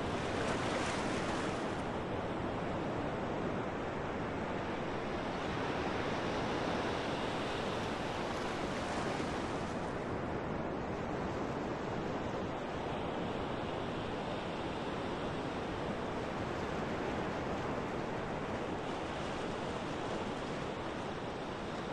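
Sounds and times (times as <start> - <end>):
wind and water rushing: 0.0 - 12.0.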